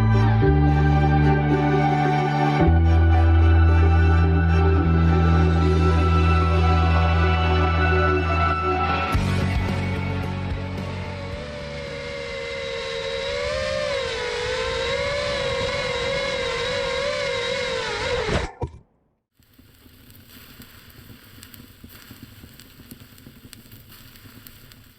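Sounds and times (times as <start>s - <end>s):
drone motors whining: 0.0s - 18.8s.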